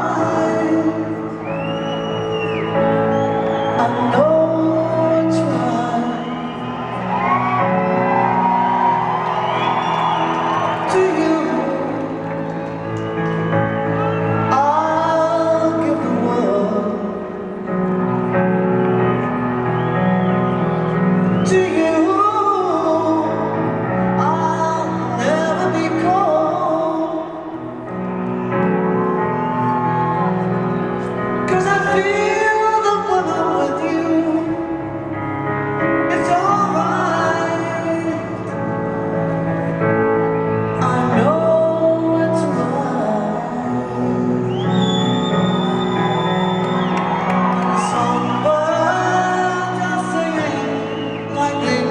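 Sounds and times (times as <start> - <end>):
woman singing ballad: 0.0 - 1.5, 3.7 - 6.6, 9.8 - 12.7, 14.4 - 17.6, 21.3 - 27.6, 31.4 - 34.8, 36.0 - 38.6, 40.7 - 45.2, 47.4 - 51.9
live piano music: 0.0 - 51.9
soft instrumental accompaniment: 0.0 - 51.9
audience whooping and shouting: 6.0 - 14.9, 28.1 - 31.1, 44.5 - 51.3.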